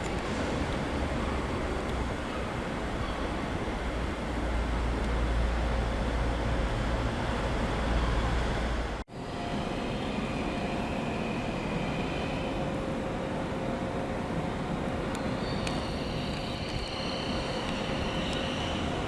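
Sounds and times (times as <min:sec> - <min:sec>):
deep train rumble: 0:00.0 - 0:19.0.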